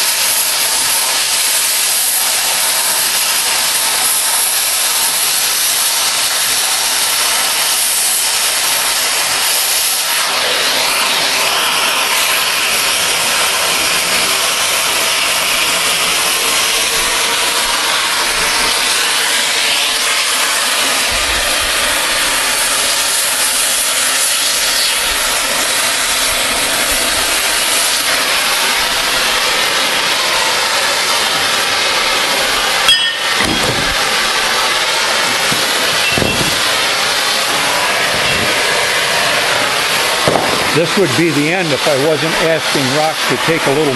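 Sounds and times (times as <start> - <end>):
cutting torch hissing: 0.0 - 43.9
sharp knock: 40.3 - 40.6.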